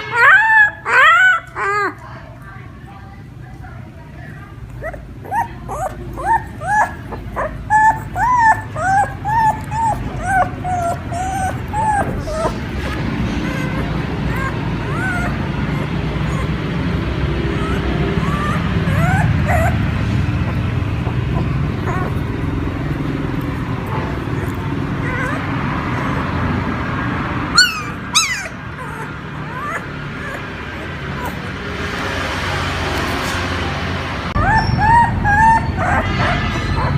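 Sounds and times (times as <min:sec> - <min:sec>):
small dog yelping: 0:00.0 - 0:02.0, 0:04.7 - 0:26.6, 0:27.4 - 0:32.2, 0:34.3 - 0:36.9
dog whimpering: 0:00.0 - 0:02.1, 0:04.6 - 0:26.8, 0:27.4 - 0:33.4, 0:34.3 - 0:36.9.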